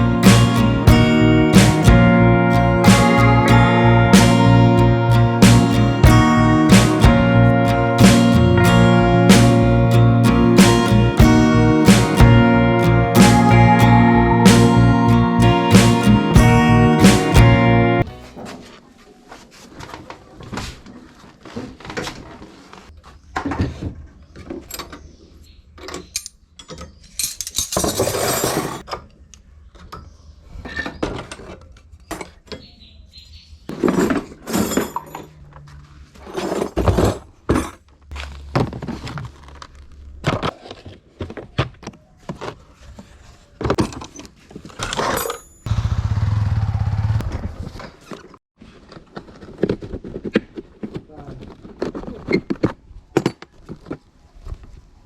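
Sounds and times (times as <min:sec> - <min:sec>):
metal tools clinking and scraping: 0:26.0 - 0:28.8, 0:33.8 - 0:36.9, 0:43.9 - 0:45.7
loud low motor hum: 0:45.7 - 0:47.3.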